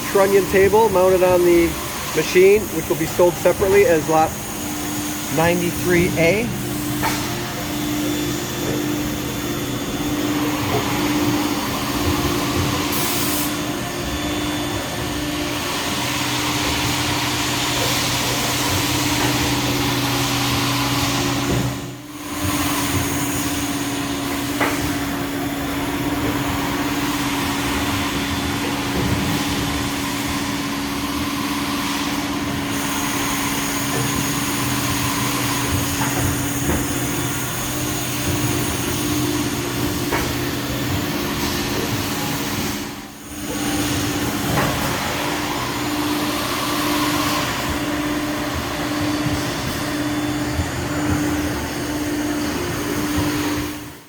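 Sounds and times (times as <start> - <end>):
machine hum: 0.0 - 21.5.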